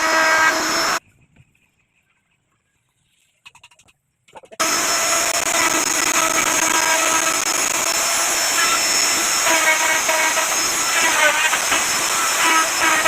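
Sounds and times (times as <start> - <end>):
wood router cutting wood: 0.0 - 1.0, 4.6 - 13.0.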